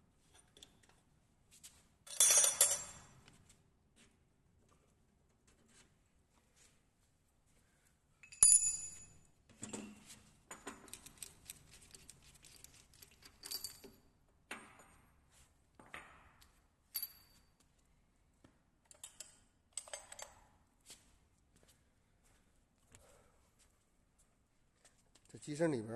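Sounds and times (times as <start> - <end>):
metal parts clinking: 10.8 - 14.0.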